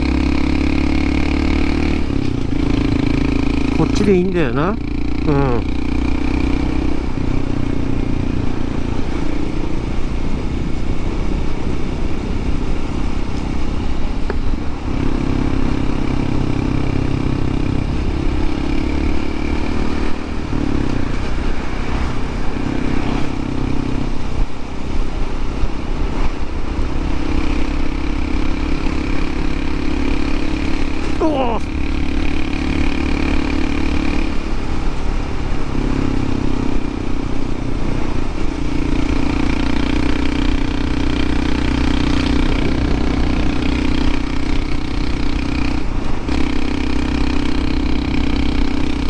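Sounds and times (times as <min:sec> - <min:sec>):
motorcycle engine running: 0:00.0 - 0:49.0
road and wind rumble: 0:00.0 - 0:49.0.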